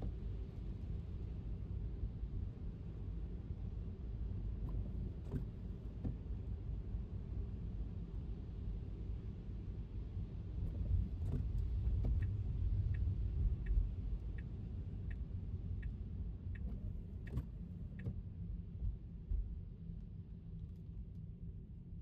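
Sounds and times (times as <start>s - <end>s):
car road rumble: 0.0s - 22.0s
turn signal ticking: 12.0s - 18.2s.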